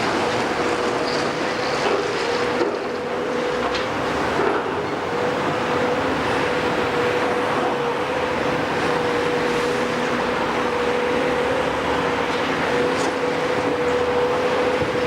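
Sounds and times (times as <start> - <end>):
heavy machinery running: 0.0 - 15.0.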